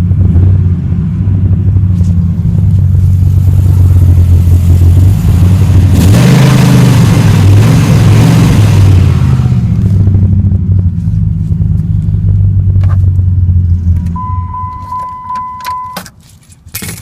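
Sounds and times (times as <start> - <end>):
car engine idling: 0.0 - 17.0
dashboard warning chime beeping: 14.1 - 16.2.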